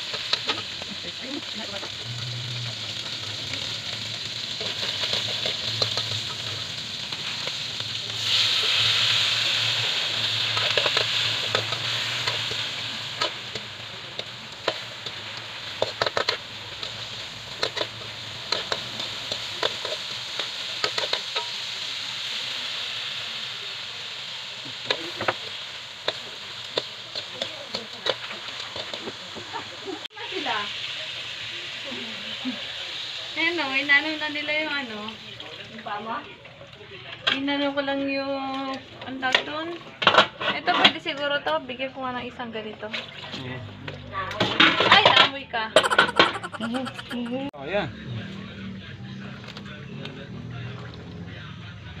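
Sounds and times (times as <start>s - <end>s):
meat sizzling in a pan: 0.0s - 36.4s.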